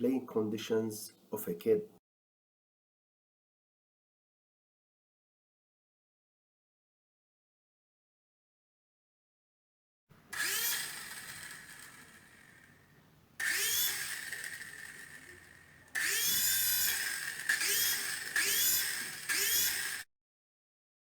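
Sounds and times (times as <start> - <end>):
toy helicopter motor whirring: 10.2 - 20.1.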